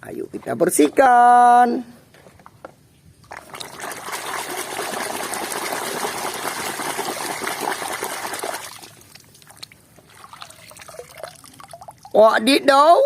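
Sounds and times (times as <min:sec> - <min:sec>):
water pouring and splashing: 0:03.2 - 0:12.2.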